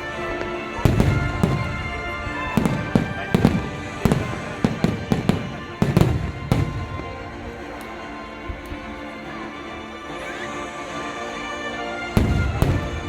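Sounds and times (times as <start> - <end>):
fireworks bangs: 0.0 - 7.9, 12.1 - 13.0
music with held notes: 0.0 - 13.0.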